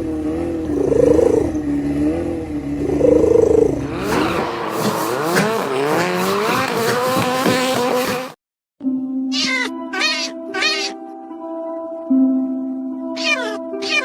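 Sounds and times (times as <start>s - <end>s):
revving engine-like sweep: 0.0s - 8.4s
cat meowing: 9.3s - 11.0s, 13.2s - 14.0s.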